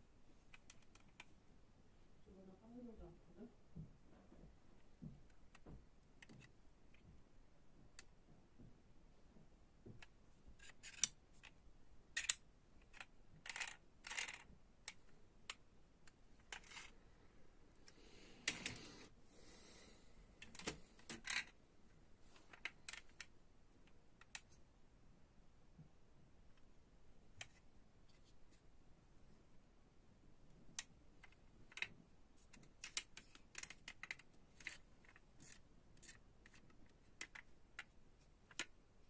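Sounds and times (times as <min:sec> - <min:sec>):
metal toy cars clicking and tapping: 0:10.0 - 0:11.6, 0:12.2 - 0:16.9, 0:20.4 - 0:21.6, 0:30.8 - 0:38.8.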